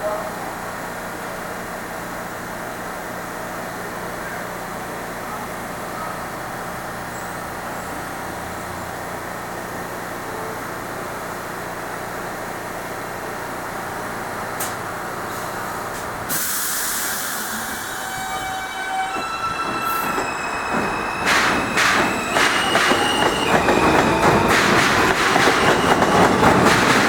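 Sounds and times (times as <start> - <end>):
subway train equipment hum: 0.0 - 27.0
air brakes hissing: 14.6 - 26.9.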